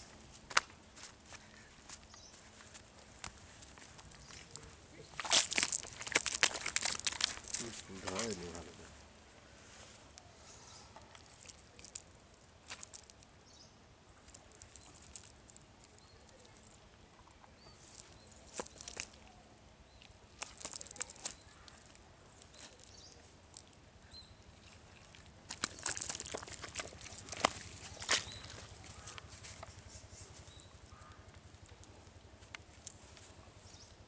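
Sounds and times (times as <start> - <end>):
sharp crackles: 2.6 - 9.0, 11.1 - 13.2, 14.3 - 16.8, 17.8 - 34.0
water splashing and pattering: 4.0 - 8.8, 24.5 - 29.6.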